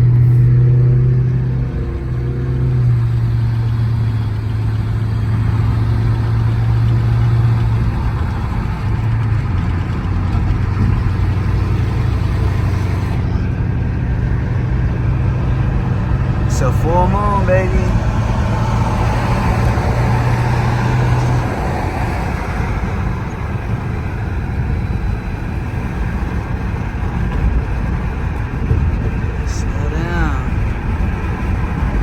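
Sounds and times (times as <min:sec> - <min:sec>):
car engine droning: 0:00.0 - 0:32.0
road and tyre noise: 0:00.0 - 0:32.0.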